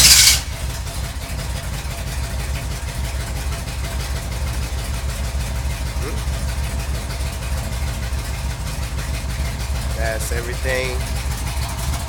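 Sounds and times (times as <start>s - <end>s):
car engine starting and idling: 0.0s - 12.0s.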